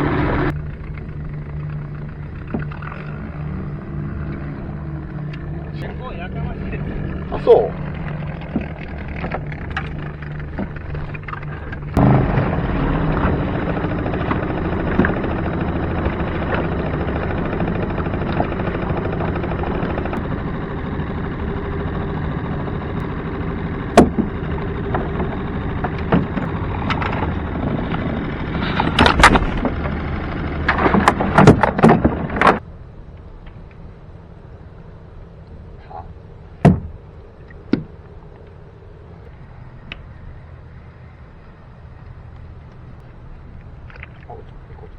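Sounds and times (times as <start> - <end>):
outboard motor running: 0.0 - 32.6
wind and water noise: 0.0 - 44.9
sharp knocks: 24.0 - 24.3, 36.6 - 37.0.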